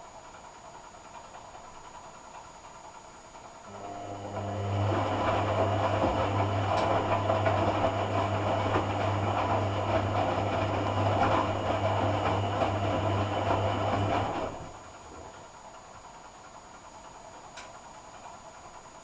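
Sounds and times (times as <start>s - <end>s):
washing machine humming and churning: 0.0s - 19.0s.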